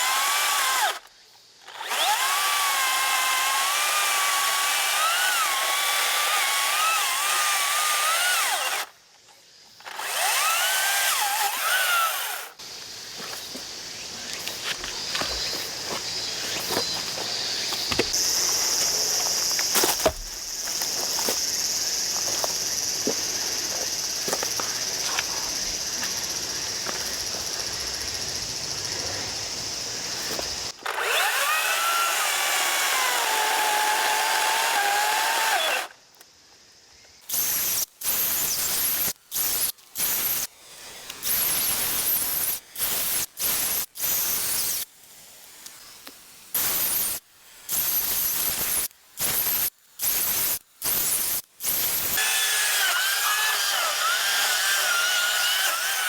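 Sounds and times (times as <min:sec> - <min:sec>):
chainsaw whining: 0:00.0 - 0:08.9, 0:09.8 - 0:12.6, 0:30.2 - 0:35.9, 0:51.1 - 0:56.0.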